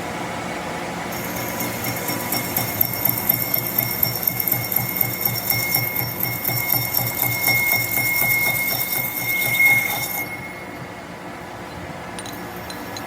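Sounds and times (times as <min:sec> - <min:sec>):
machine whining: 0:01.1 - 0:11.4.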